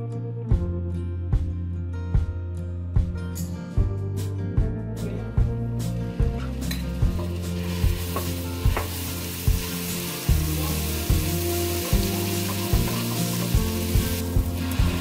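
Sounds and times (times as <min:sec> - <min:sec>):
background music: 0:00.0 - 0:15.0
paste sizzling in a frying pan: 0:06.4 - 0:15.0.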